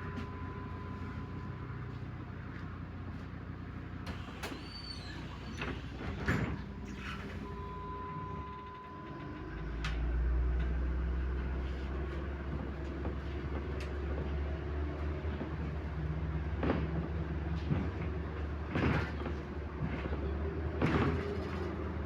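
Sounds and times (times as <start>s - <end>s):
bus engine humming: 0.0s - 22.0s.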